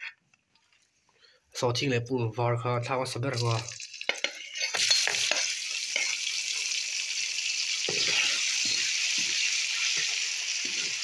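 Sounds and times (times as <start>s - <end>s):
metal spoon scraping a pan: 3.3s - 6.8s, 7.8s - 11.0s
garlic sizzling in hot oil: 3.4s - 11.0s.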